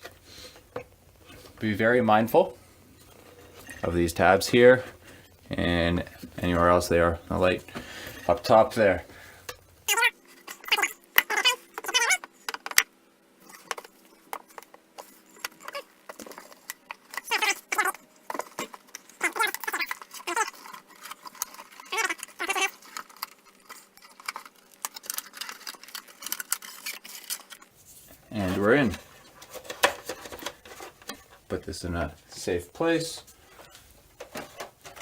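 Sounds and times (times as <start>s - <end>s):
faint steady hum: 0.0s - 35.0s
plastic squeaking and creaking: 3.0s - 32.2s, 32.8s - 35.0s.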